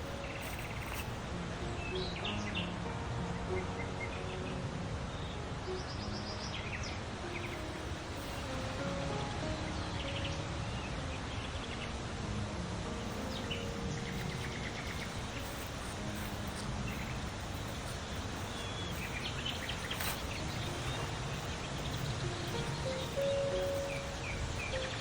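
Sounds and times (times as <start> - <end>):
birds chirping: 0.0 - 2.4, 7.2 - 9.0, 13.0 - 25.0
background hiss: 0.0 - 2.8, 5.8 - 9.9, 12.5 - 25.0.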